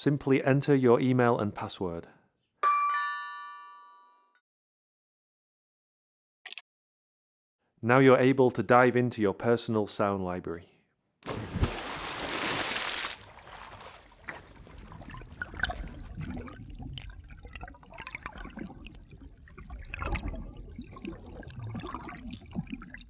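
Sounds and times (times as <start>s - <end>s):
water pouring: 11.3s - 23.0s
water trickling and dripping: 12.5s - 23.0s.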